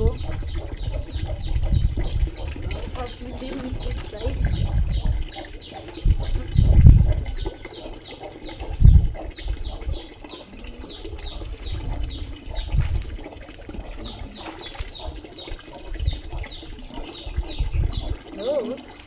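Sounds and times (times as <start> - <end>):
water splashing: 0.0 - 19.0
bird chirping: 14.0 - 18.7.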